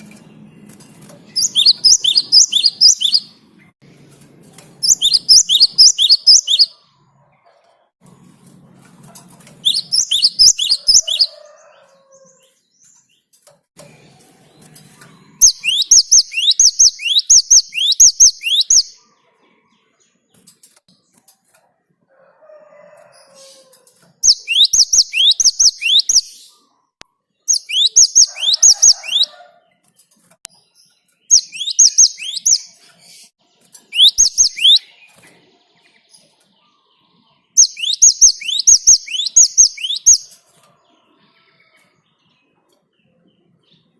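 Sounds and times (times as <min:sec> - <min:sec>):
great tit singing: 0:01.3 - 0:03.4, 0:04.8 - 0:06.9, 0:09.6 - 0:11.3, 0:15.4 - 0:19.2, 0:24.2 - 0:29.3, 0:30.7 - 0:33.3, 0:33.9 - 0:35.1, 0:35.9 - 0:40.4.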